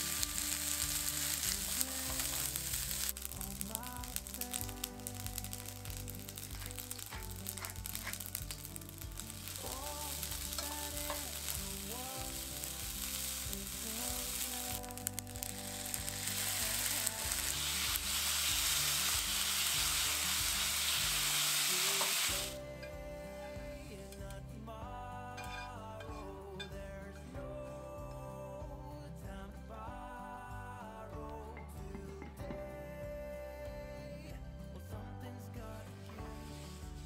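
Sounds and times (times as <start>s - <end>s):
noodles sizzling in a frying pan: 0.0s - 22.6s
chopsticks stirring: 4.2s - 14.4s.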